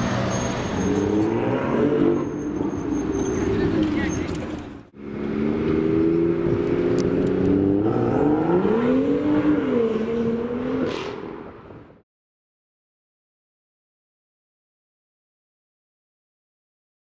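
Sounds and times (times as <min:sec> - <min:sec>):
car engine revving: 0:00.0 - 0:11.4.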